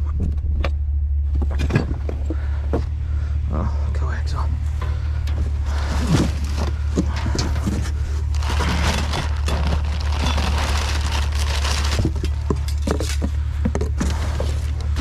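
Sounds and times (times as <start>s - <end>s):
steady low rumble: 0.0s - 15.0s
rummaging through discarded items: 4.7s - 15.0s.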